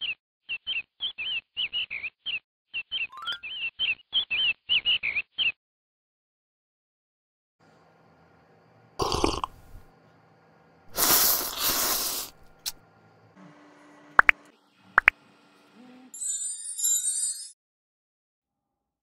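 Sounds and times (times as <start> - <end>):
faint hum: 7.6 - 16.2
gulping noise: 9.0 - 9.8
loud slurp: 9.0 - 9.8, 10.9 - 12.8.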